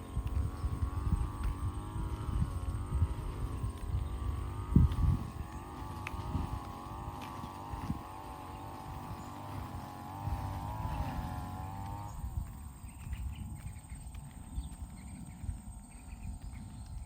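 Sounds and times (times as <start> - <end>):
faint ticks: 0.0 - 8.0
motor droning: 0.0 - 17.0.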